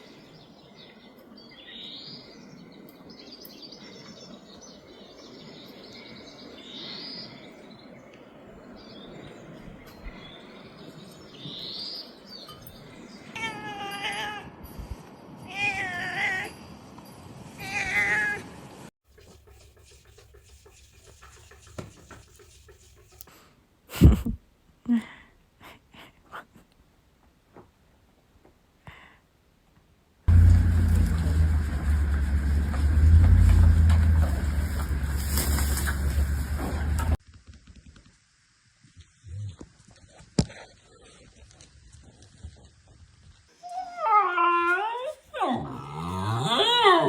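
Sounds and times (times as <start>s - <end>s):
cat meowing: 15.5s - 16.5s.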